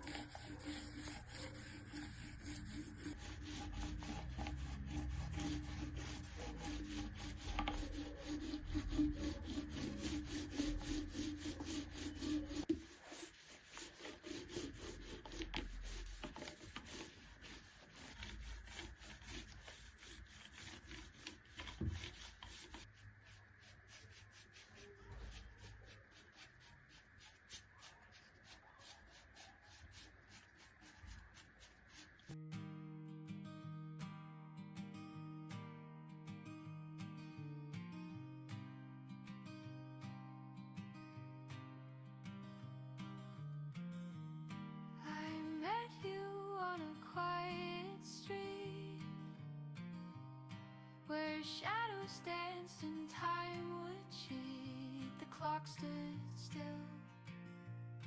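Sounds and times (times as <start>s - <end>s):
rubbing strokes on wood: 0.0s - 32.4s.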